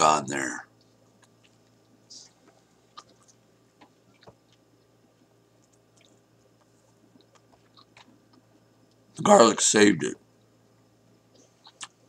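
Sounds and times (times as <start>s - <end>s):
faint mouth clicks chewing: 0.8s - 9.0s, 11.3s - 12.0s.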